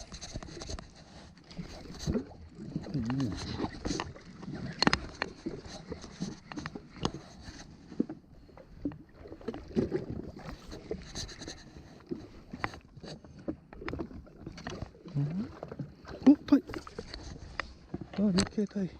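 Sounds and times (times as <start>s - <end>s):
water lapping against a hull: 0.0s - 18.9s
small knocks and clicks: 3.2s - 8.1s, 16.7s - 18.8s.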